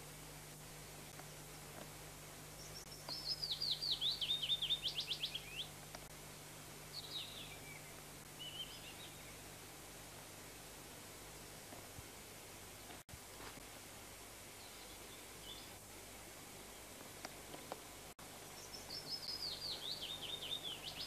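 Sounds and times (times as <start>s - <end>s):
faint steady hum: 0.0s - 21.0s
songbird whistling: 2.6s - 5.7s, 7.0s - 9.4s, 18.6s - 21.0s.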